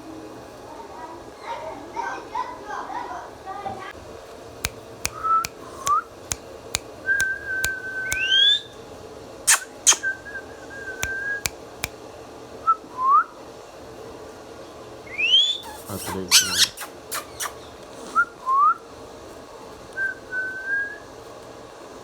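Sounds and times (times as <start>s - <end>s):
loud snaps: 4.6s - 8.4s, 9.5s - 10.1s, 11.0s - 11.6s.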